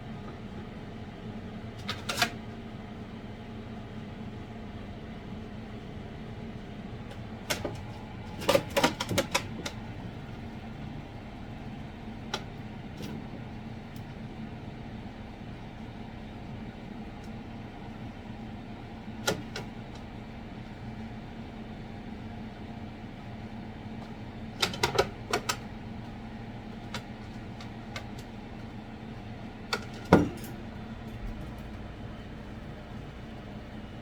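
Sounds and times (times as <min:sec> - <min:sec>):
steady low hum: 0:02.4 - 0:34.0.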